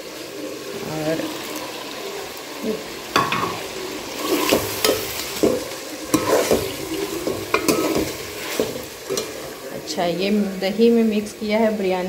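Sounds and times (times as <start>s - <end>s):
food sizzling in a pot: 0.0s - 12.0s
ladle scraping and knocking pot: 4.2s - 9.5s.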